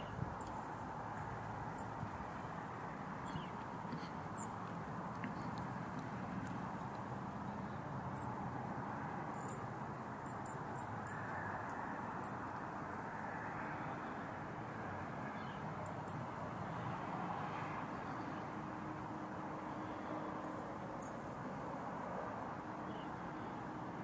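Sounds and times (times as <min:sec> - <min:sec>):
small birds chirping: 0:00.0 - 0:02.6, 0:03.2 - 0:08.4
outdoor background noise: 0:00.0 - 0:24.0.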